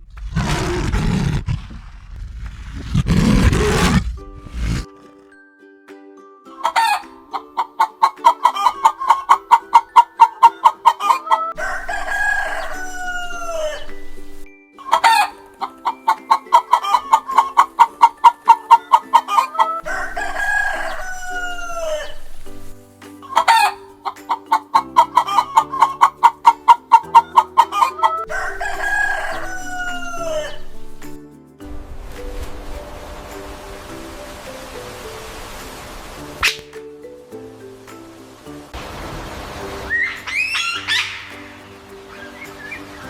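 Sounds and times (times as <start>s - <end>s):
soft background music: 2.9s - 43.0s
chicken clucking and crowing: 7.6s - 13.8s, 19.2s - 22.1s, 24.5s - 30.6s.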